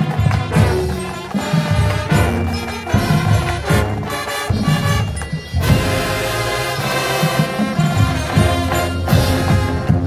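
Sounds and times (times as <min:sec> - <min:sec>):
bass drums and percussion: 0:00.0 - 0:10.0
brass chords: 0:00.0 - 0:10.0.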